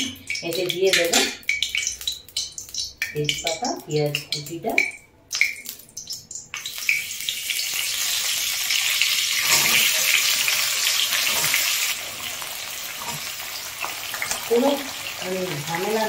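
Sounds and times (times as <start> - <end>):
leaves and onion sizzling in oil: 6.6 - 16.0.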